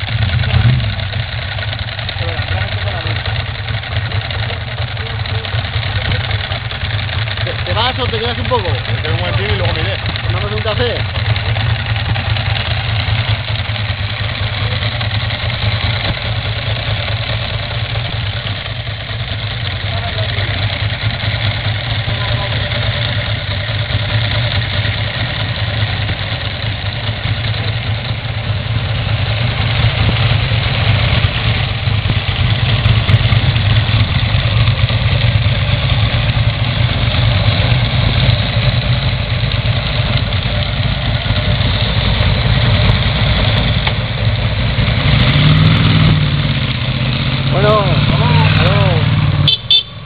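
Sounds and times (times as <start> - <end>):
motorcycle engine revving: 0.0 - 50.0
motorcycle engines idling: 0.0 - 50.0.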